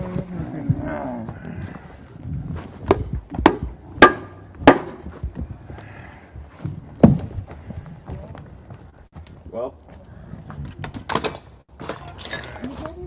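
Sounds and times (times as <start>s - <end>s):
sharp knocks on wood: 2.9s - 5.4s.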